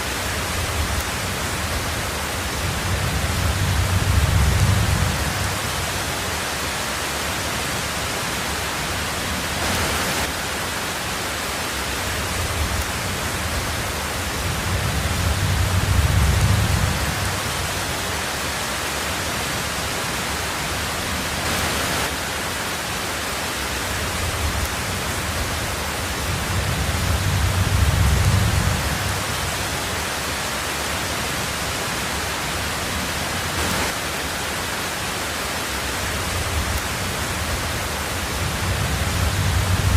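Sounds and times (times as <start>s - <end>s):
rain on a tin roof: 0.0s - 39.9s
thunder rumbles: 0.3s - 6.2s, 12.3s - 18.0s, 24.1s - 29.7s, 36.2s - 39.9s.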